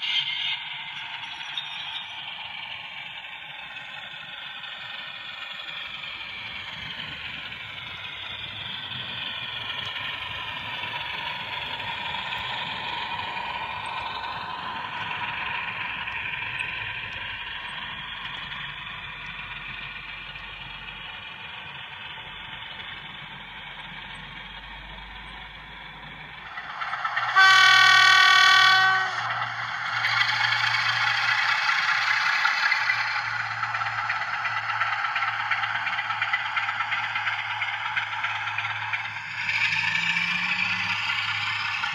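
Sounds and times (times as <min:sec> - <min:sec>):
model diesel engine sound: 0:00.0 - 0:41.9
loud horn blast: 0:27.2 - 0:29.4.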